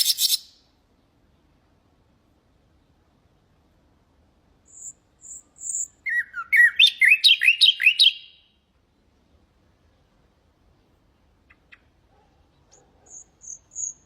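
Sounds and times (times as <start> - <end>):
nightingale singing: 0.0 - 0.7, 4.6 - 9.1, 11.3 - 14.0.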